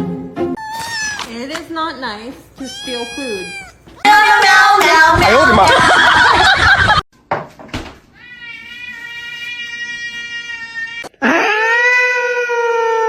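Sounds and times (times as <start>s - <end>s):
cat yowling: 0.6s - 1.4s, 2.6s - 4.2s.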